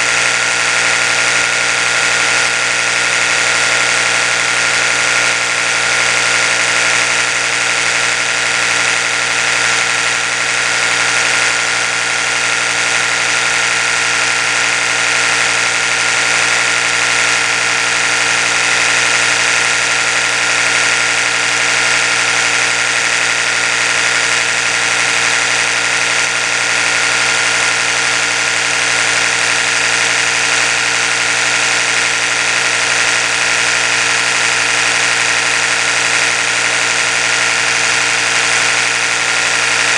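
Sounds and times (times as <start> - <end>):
electric toothbrush buzzing: 0.0 - 39.9.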